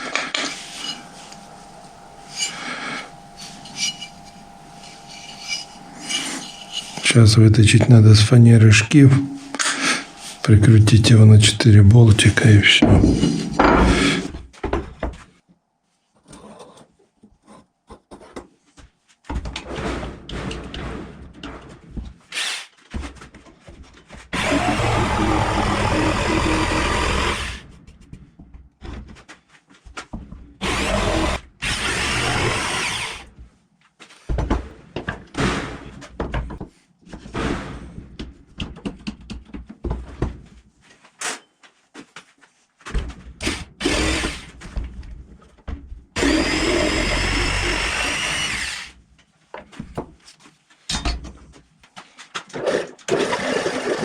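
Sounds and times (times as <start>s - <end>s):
power tool cutting plywood: 0.0s - 8.0s, 9.0s - 11.6s, 24.3s - 27.7s, 30.6s - 33.3s, 43.4s - 44.6s, 46.2s - 49.0s, 52.6s - 54.0s
knocks and handling of wood: 33.3s - 46.6s, 49.1s - 52.5s.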